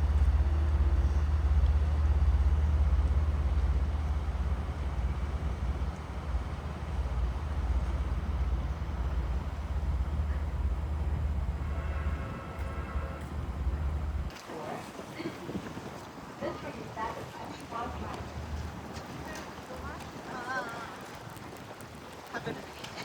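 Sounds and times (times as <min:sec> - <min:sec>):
train rumbling inside car: 0:00.0 - 0:14.8.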